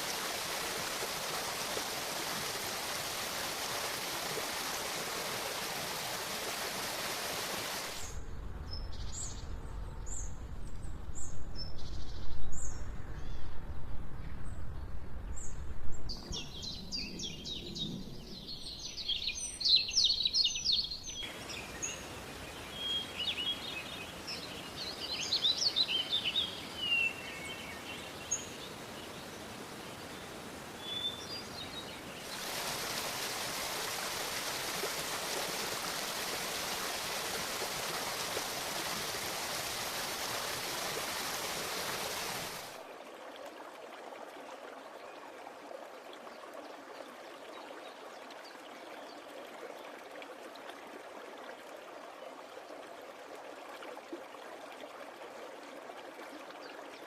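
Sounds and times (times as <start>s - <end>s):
running water rushing: 0.0s - 8.2s, 21.1s - 57.0s
steady background hiss: 21.2s - 42.8s.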